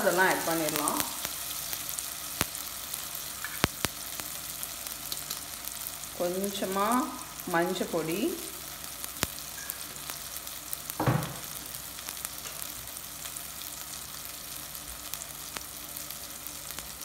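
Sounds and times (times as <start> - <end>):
onions sizzling in hot oil: 0.0 - 17.0
short knock: 11.0 - 11.4.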